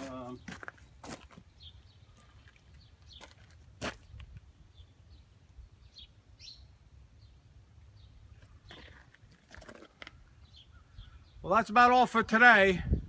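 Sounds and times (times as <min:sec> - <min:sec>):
bird chirps: 0:04.7 - 0:08.9, 0:10.4 - 0:11.5.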